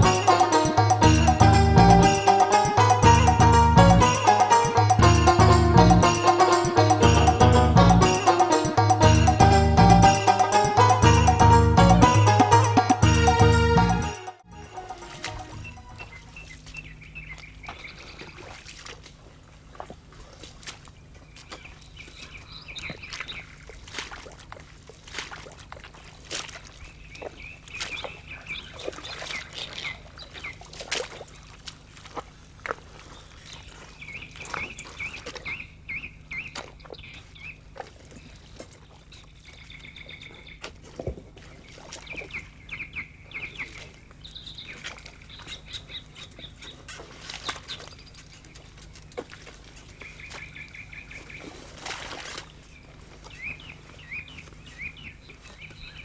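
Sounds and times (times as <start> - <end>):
birds chirping: 0.0 - 18.2.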